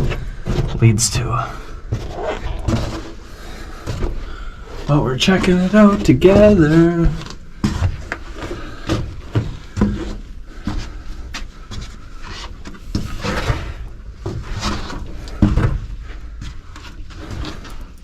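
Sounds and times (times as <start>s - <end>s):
echoing footsteps and scuffs in tunnel: 0.0s - 0.8s, 1.4s - 12.2s.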